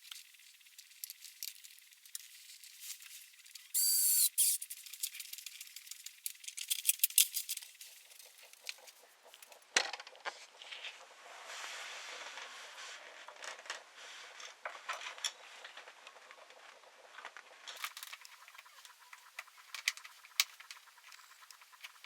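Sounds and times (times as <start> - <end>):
soft hiss: 0.0 - 6.4
small clicks and knocks: 4.4 - 10.4, 17.2 - 22.0.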